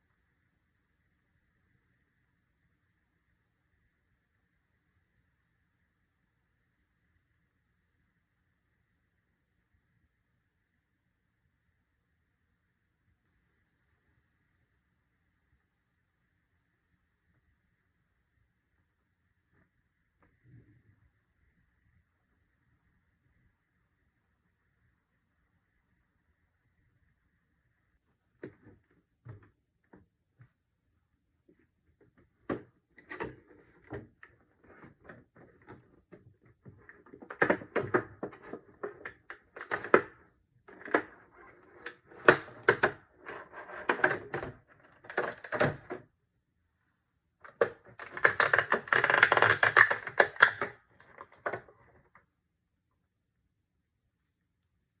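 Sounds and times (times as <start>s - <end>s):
rustling cardboard and plastic: 32.0s - 46.0s, 47.4s - 52.1s
toy packaging being opened: 47.6s - 51.5s.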